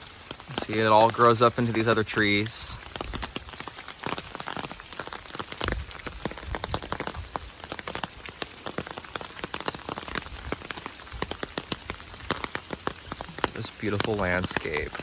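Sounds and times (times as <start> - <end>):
rain drops falling: 0.0 - 15.0.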